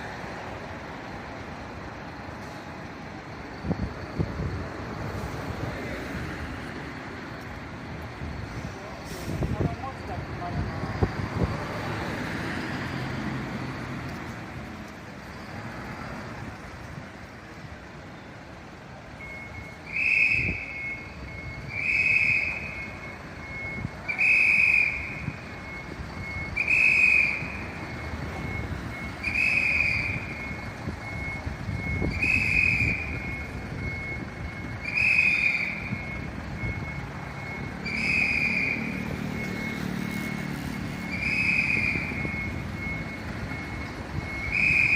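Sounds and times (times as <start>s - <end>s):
low engine and traffic noise: 0.0s - 44.9s
vehicle warning beeper: 0.0s - 44.9s.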